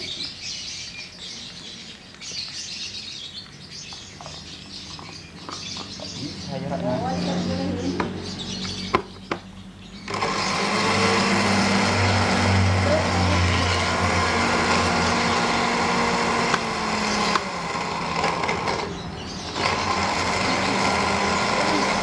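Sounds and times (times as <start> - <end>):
small motor humming: 10.0 - 22.0.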